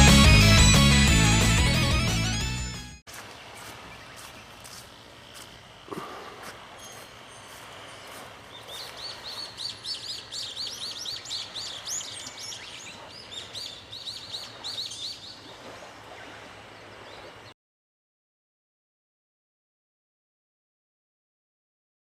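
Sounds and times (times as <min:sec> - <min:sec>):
bird chirping: 0:05.2 - 0:15.5.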